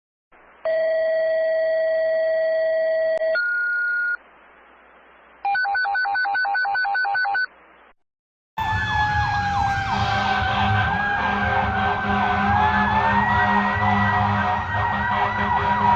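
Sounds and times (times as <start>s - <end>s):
fire truck siren wailing: 8.6s - 15.9s
low engine rumble: 9.1s - 15.9s
long steady electronic tone: 9.9s - 15.9s.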